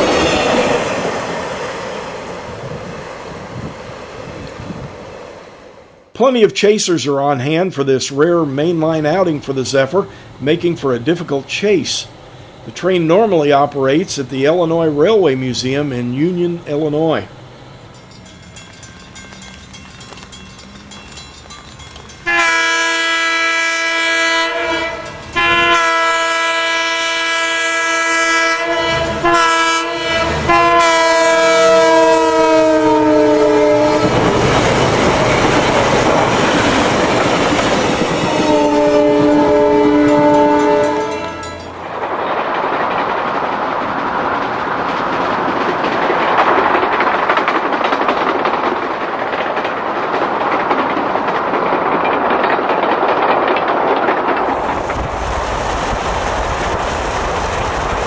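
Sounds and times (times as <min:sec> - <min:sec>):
passing train clickety-clack: 0:00.0 - 0:06.2, 0:07.4 - 0:58.0
locomotive air horn: 0:22.2 - 0:34.2, 0:38.2 - 0:41.6.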